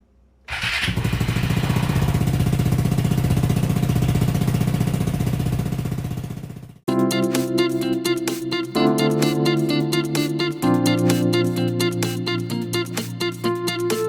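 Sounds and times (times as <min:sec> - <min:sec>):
motorcycle engine running: 0:00.6 - 0:06.8.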